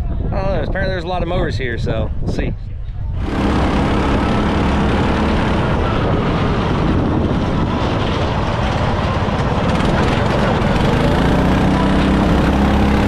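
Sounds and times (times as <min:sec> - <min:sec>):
riding lawn mower engine: 0:03.2 - 0:13.0.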